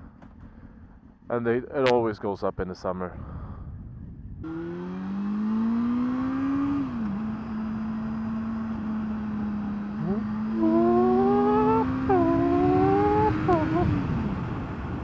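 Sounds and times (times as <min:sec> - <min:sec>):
motorcycle engine accelerating: 0:04.3 - 0:15.0.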